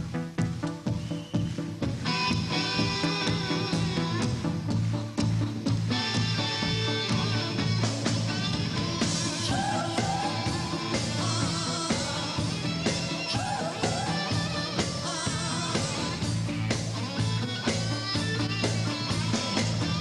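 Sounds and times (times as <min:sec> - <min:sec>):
pop-rock band playing: 0:00.0 - 0:20.0
wavering vocal line: 0:09.1 - 0:16.2.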